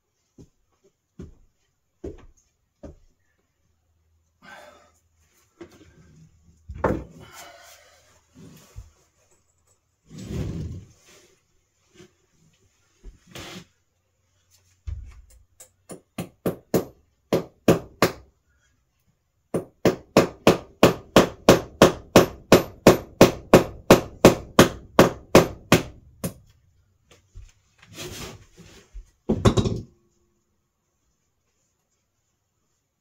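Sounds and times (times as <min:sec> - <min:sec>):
scraping or rustling: 0:27.6 - 0:29.1.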